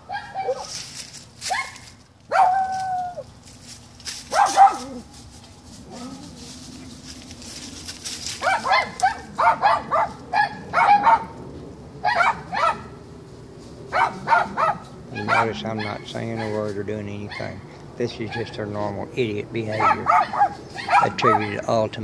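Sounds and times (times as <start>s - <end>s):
dogs barking: 0.0s - 0.8s, 1.4s - 3.3s, 4.2s - 13.2s, 13.8s - 22.0s.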